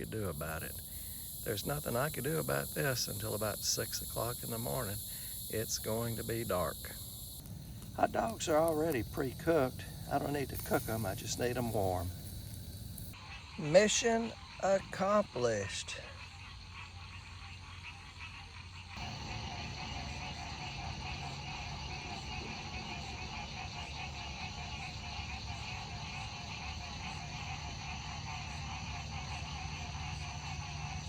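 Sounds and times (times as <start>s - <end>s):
frogs calling: 0.0s - 31.0s
insects: 0.0s - 31.0s.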